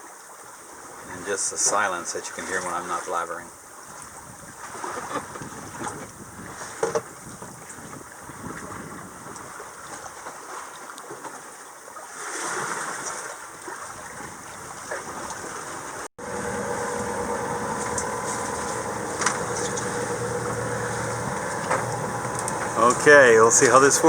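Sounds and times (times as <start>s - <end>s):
water washing along a hull: 0.0s - 24.0s
light wind: 12.2s - 24.0s
motor drone: 16.2s - 24.0s.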